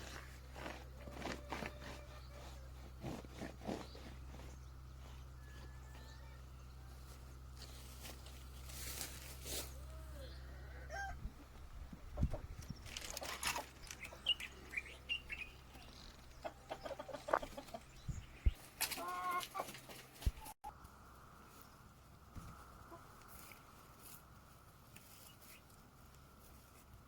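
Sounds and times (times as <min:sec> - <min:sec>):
chickens clucking: 0:10.2 - 0:20.5, 0:22.5 - 0:23.6.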